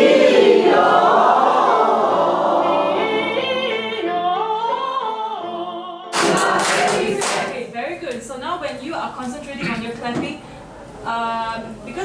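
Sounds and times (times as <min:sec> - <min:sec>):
choir singing unaccompanied: 0:00.0 - 0:07.8.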